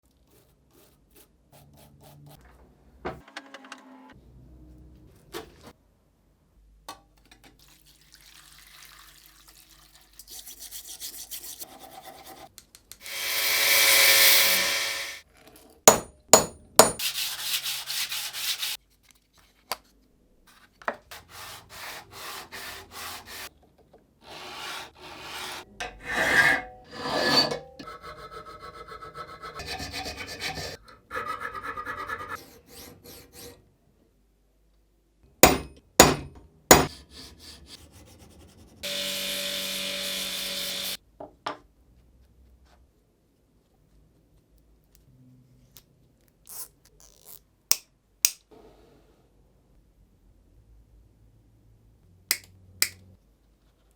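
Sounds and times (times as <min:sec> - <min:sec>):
scraping and filing metal: 0:11.6 - 0:15.2, 0:24.3 - 0:33.6.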